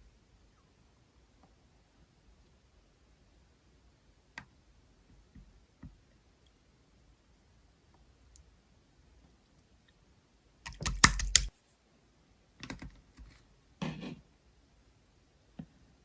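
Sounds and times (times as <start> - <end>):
clicking and rustling handling: 10.7 - 11.5.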